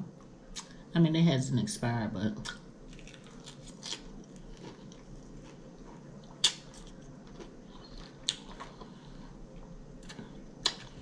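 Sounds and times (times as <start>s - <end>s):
person chewing lettuce: 2.8s - 11.0s.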